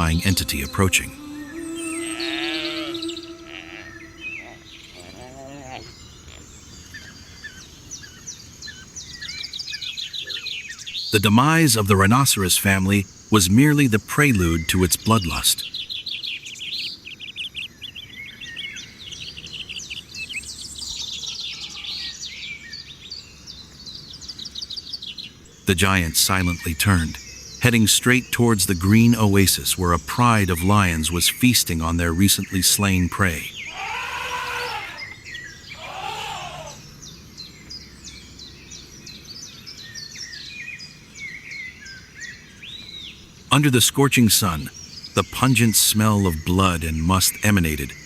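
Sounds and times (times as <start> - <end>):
drawn-out animal call: 0.0 - 6.4, 33.7 - 35.2, 35.8 - 36.8
songbirds chirping and trilling: 0.0 - 48.0.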